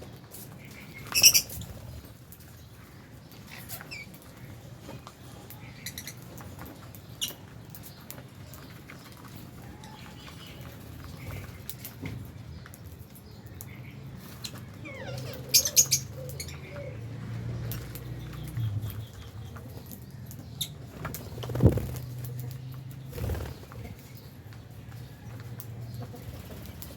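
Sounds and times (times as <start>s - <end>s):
lovebirds chirping: 0.0s - 25.2s
loud sharp bird calls: 0.6s - 2.1s.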